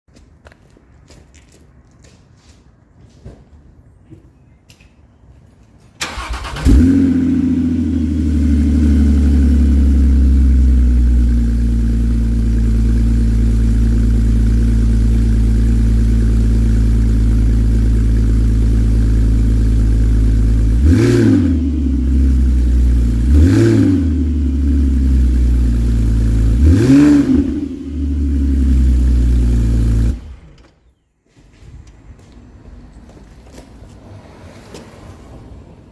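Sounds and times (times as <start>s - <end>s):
car engine idling and revving: 6.0s - 30.7s.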